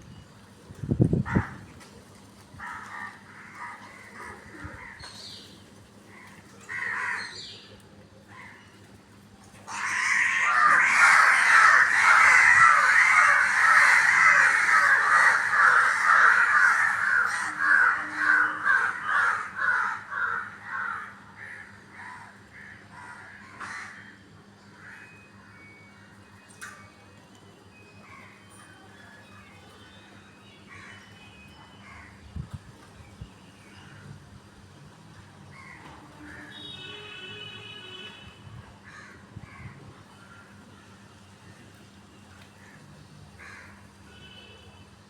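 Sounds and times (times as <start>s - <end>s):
crows cawing: 2.6s - 5.0s, 6.1s - 7.5s, 9.7s - 24.1s, 38.8s - 40.5s, 43.4s - 43.8s.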